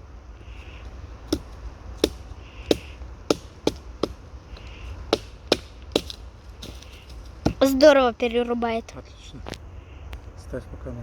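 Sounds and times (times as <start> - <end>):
hatchet chopping branches: 0.4 - 7.9.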